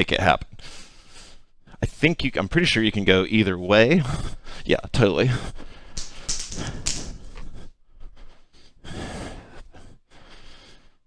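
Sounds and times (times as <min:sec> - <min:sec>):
person breathing heavily: 0:05.4 - 0:11.0.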